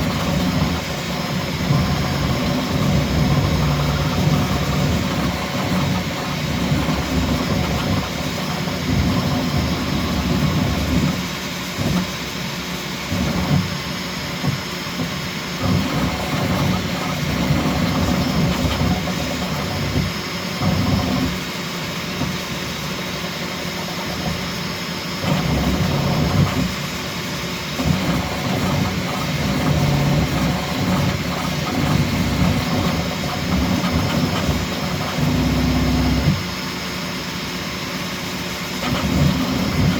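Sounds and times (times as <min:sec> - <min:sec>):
stepper motors buzzing: 0:00.0 - 0:12.2, 0:27.7 - 0:36.5, 0:38.7 - 0:39.9.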